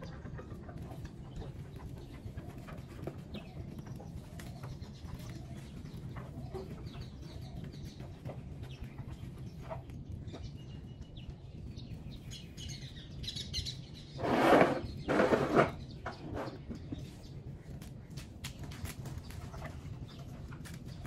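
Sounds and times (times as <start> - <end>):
birds cooing: 0.0 - 17.7
birds chirping: 0.0 - 21.0.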